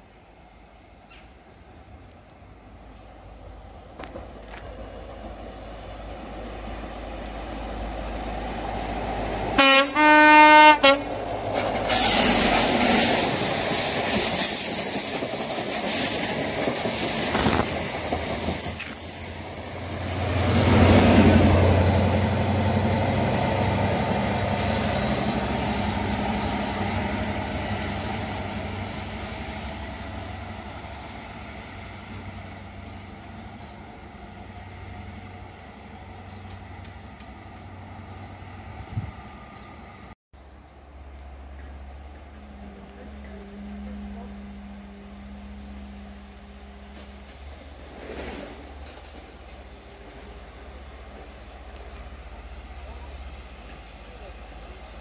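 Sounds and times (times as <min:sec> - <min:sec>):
train rushing past: 0:03.8 - 0:55.0
two-note train horn blast: 0:09.5 - 0:11.2, 0:41.6 - 0:47.8
diesel engine roar: 0:40.4 - 0:55.0.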